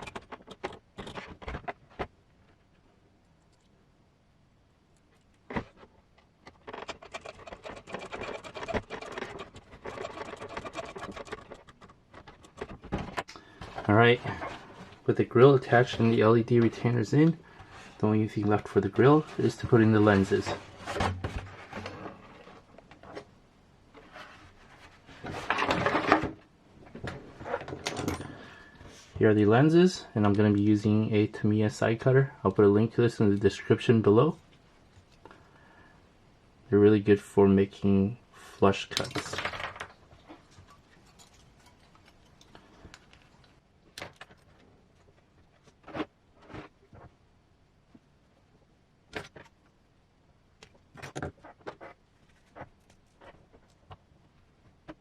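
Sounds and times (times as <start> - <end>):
rustling: 4.9 - 29.6, 38.3 - 47.2, 50.7 - 55.0.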